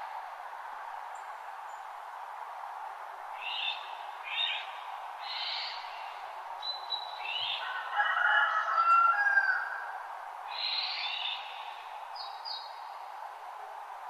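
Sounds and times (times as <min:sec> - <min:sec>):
wild birds singing: 0:03.4 - 0:08.0, 0:10.5 - 0:13.0.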